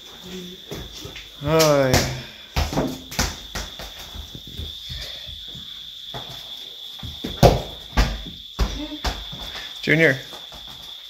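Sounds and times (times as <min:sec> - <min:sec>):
knocks and thumps: 0:00.7 - 0:09.7
high-pitched insect chirring: 0:02.8 - 0:11.0.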